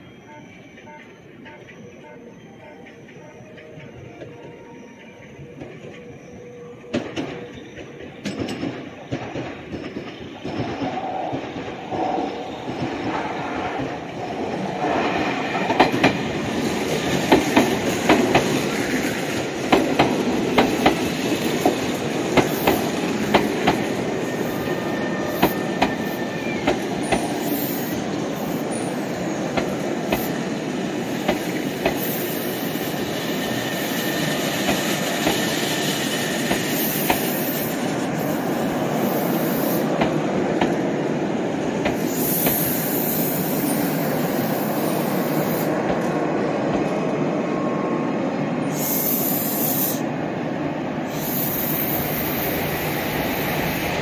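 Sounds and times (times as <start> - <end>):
electric train rumbling: 0.0 - 54.0
wheels clacking over rail joints: 6.9 - 32.3.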